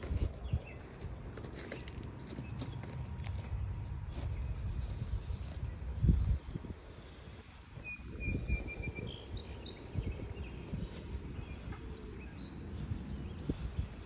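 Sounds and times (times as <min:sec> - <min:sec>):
footsteps on paved path: 0:00.0 - 0:06.6
songbirds calling: 0:00.0 - 0:14.0.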